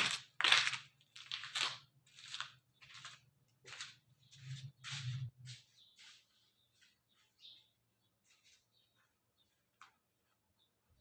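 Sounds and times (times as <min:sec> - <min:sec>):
crunching and scraping: 0:00.0 - 0:06.0.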